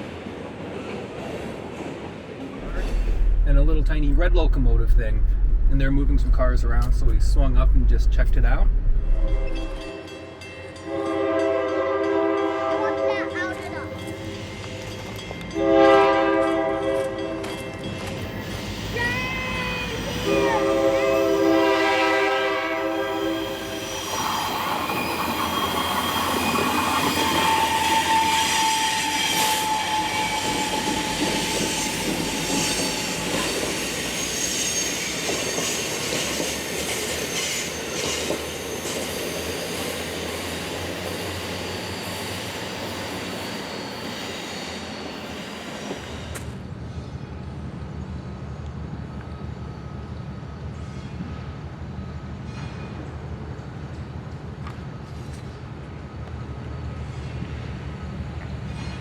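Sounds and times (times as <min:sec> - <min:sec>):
train wheels rolling: 0:00.7 - 0:09.9, 0:22.8 - 0:46.7
train horn blast: 0:10.8 - 0:13.8, 0:15.5 - 0:17.7, 0:20.2 - 0:23.8
squealing wheels: 0:22.9 - 0:46.4.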